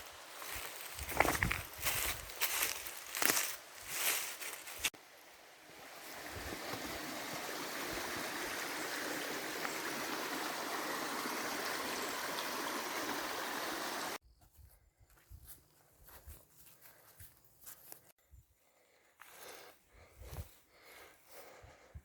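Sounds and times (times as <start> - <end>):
rushing water: 4.9 - 14.2.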